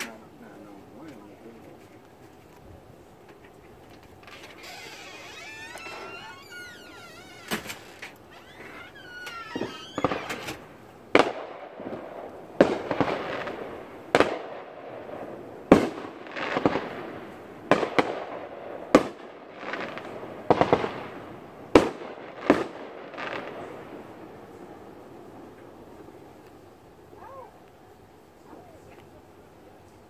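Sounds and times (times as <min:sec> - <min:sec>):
fireworks bangs with crackling: 0:03.2 - 0:27.0.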